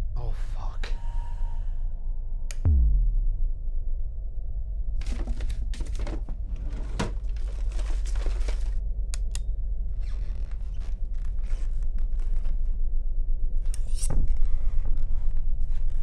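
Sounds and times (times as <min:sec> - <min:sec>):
low steady rumble: 0:00.0 - 0:15.8
rustling and scuffling: 0:05.0 - 0:08.8.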